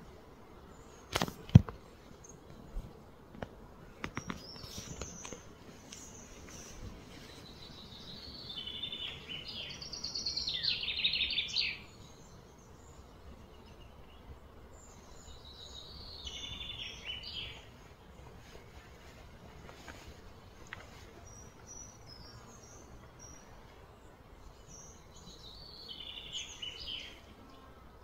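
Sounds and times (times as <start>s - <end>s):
low outdoor background hum: 0.0s - 28.0s
bird chirping: 4.1s - 17.9s, 20.5s - 27.7s.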